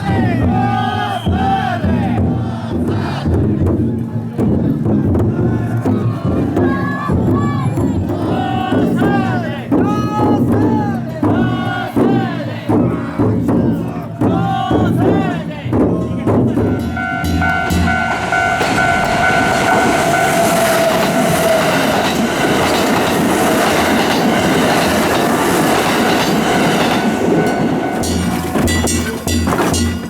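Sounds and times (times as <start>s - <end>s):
train wheels rushing on rail: 0.0s - 30.0s
steady whine: 16.6s - 29.3s.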